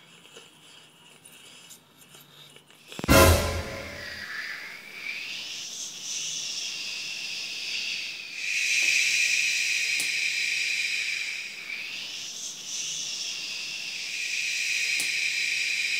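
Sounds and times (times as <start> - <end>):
eerie high-pitched hissing drone: 3.1 - 15.9.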